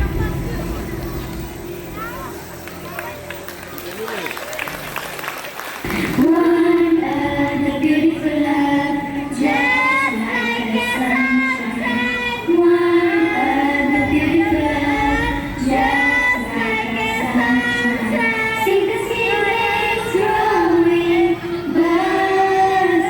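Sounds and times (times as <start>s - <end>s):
high voices singing: 5.9s - 23.0s.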